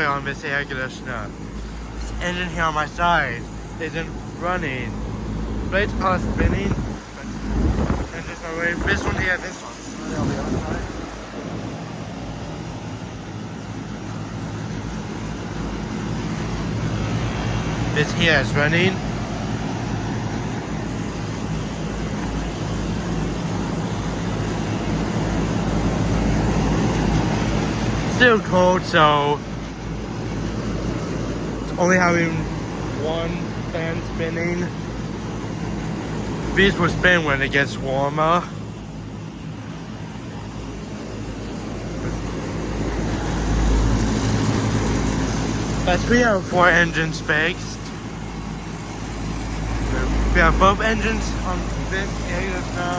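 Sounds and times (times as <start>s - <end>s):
air conditioner unit humming: 0.0s - 52.9s
fan rushing: 0.0s - 52.9s.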